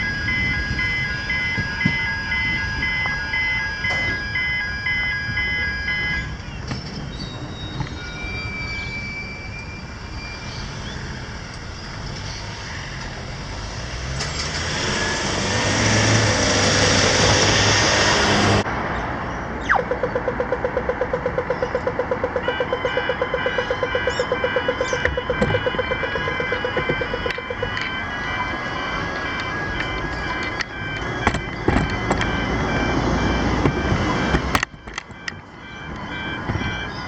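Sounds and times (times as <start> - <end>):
higher beeping alarm: 0.0 - 6.4, 7.0 - 11.5, 19.7 - 37.0
rapid pulsing alarm tone: 0.0 - 6.4, 7.4 - 11.5, 19.7 - 37.0
road traffic passing: 0.0 - 37.0
heavy vehicle passing: 10.6 - 22.5, 23.2 - 34.6.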